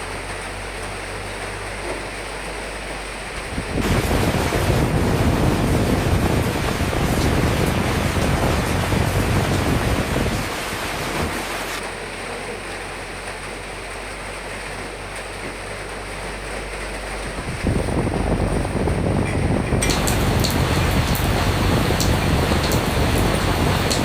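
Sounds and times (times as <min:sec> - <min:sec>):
rain hissing: 0:00.0 - 0:24.0
wind gusts: 0:03.4 - 0:11.8, 0:17.3 - 0:24.0.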